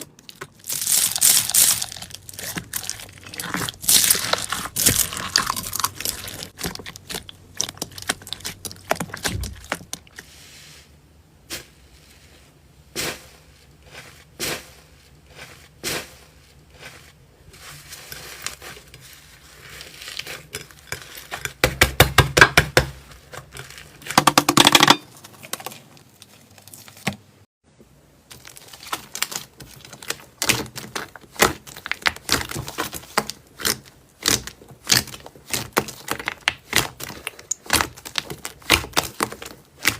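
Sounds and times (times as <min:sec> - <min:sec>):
crunchy slime crackling: 0:00.0 - 0:10.2, 0:28.3 - 0:39.9.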